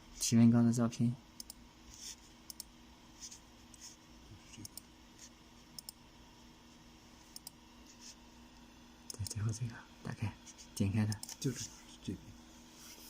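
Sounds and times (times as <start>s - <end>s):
low electrical hum: 0.0s - 13.0s
computer mouse clicks: 1.4s - 1.6s, 2.5s - 2.7s, 4.5s - 4.9s, 5.8s - 6.0s, 7.3s - 7.6s, 9.1s - 9.4s.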